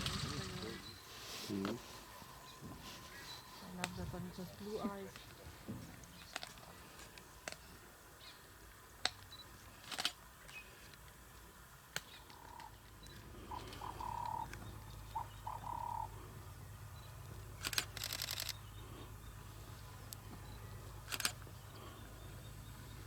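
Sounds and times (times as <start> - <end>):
low steady hum: 0.0 - 23.0
camera shutter clicking: 9.9 - 10.2, 17.6 - 18.6, 21.1 - 21.4.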